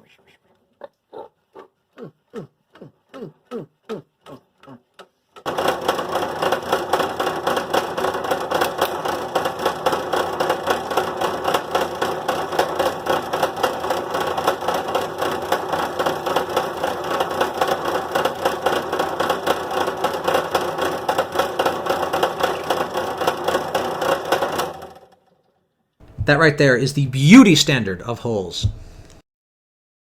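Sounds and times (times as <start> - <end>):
drill press boring into plastic: 5.3 - 25.2.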